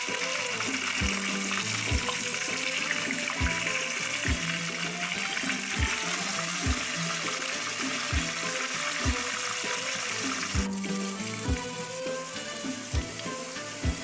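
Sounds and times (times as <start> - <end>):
background music with beat: 0.0 - 14.0
fish sizzling in hot oil: 0.0 - 14.0
ginger frying in oil: 0.0 - 14.0.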